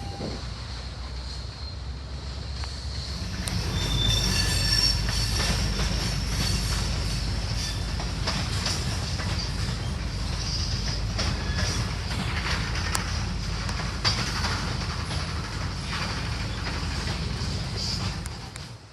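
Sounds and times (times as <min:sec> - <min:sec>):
train rumbling on rails: 0:00.0 - 0:18.9
wheel squeal: 0:02.6 - 0:13.0.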